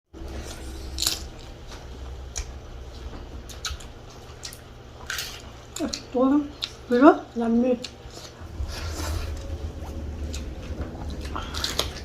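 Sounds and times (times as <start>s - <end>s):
low steady hum: 0.2s - 12.0s.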